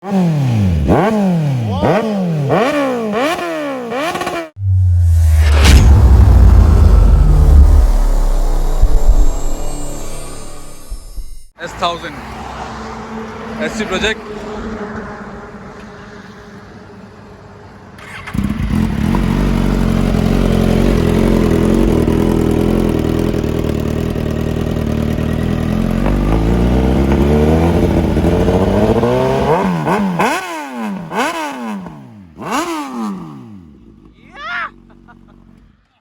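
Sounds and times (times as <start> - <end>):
motorcycle engine revving: 0.0 - 11.5, 18.0 - 34.2.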